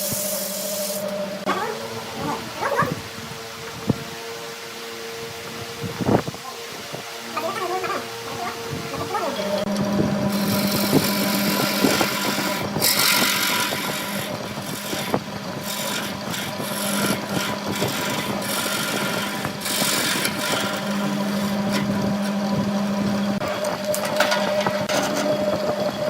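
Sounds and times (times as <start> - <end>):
lathe motor hum: 0.0 - 26.0
tool scraping spinning wood: 5.3 - 26.0.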